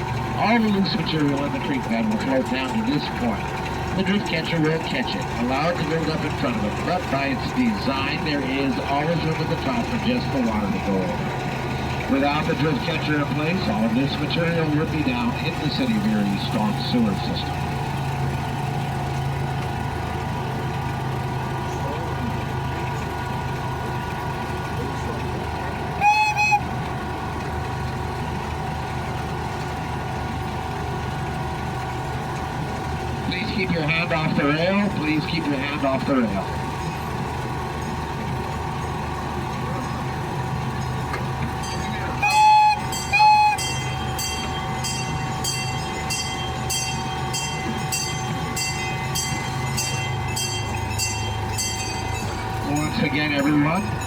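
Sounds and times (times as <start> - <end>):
train running on track: 0.0 - 54.0
train horn tooting: 26.0 - 26.8, 41.6 - 44.2
bell ringing: 40.8 - 54.0.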